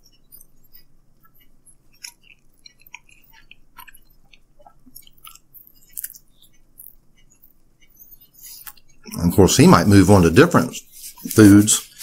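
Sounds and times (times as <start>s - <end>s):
person chewing with wet smacks: 0.0s - 9.2s.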